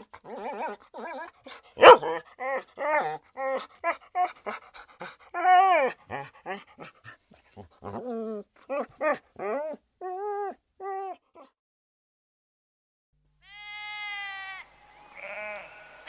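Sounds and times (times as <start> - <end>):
dog whimpering and yipping: 0.0 - 11.5.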